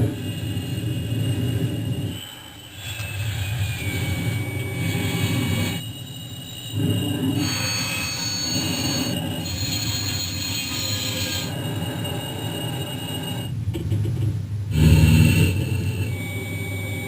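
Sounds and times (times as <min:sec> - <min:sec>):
deep rumble: 0:00.0 - 0:02.3
jet engine whine and roar: 0:00.0 - 0:17.0.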